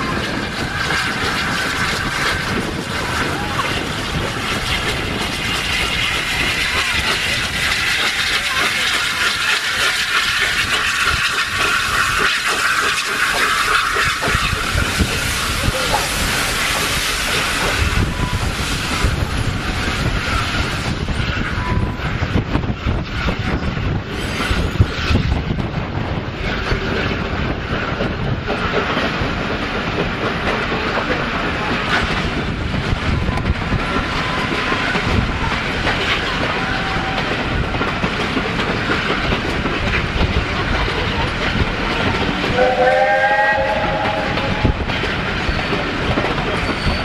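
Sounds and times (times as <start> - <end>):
train wheels clattering over rail joints: 0.0 - 47.0
locomotive whistle: 42.5 - 44.8.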